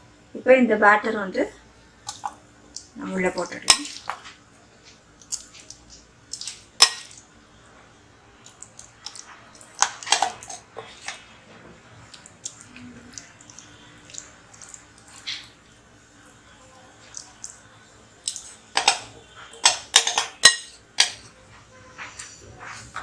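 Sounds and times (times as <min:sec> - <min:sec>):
wet drips: 0:05.2 - 0:07.3, 0:12.0 - 0:15.6, 0:17.0 - 0:17.6.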